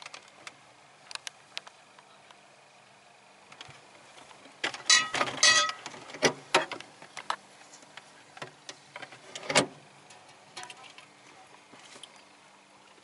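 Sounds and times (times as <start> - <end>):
objects being handled clattering: 4.6 - 11.1.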